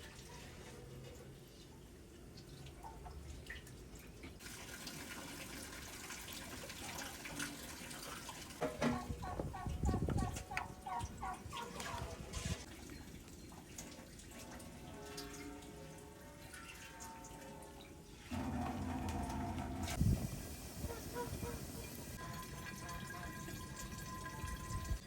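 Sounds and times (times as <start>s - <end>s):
water running and dripping: 16.4s - 25.0s
fowl calling: 20.8s - 22.3s.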